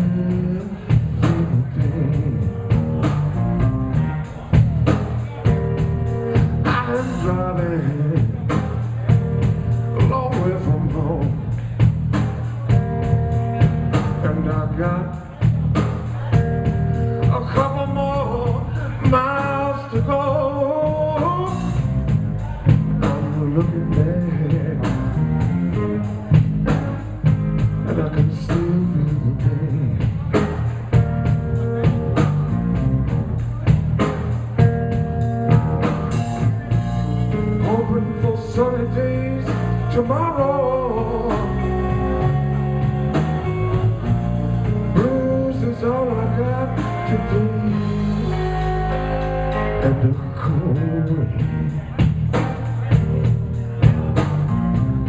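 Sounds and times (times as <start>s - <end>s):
drum kit steady beat: 0.0s - 50.0s, 51.3s - 55.0s
bass guitar: 0.0s - 55.0s
lead guitar bending in pitch: 40.8s - 51.6s.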